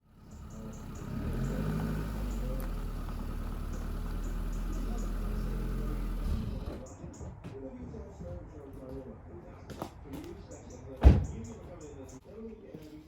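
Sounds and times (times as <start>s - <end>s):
engine idling: 0.0s - 6.9s.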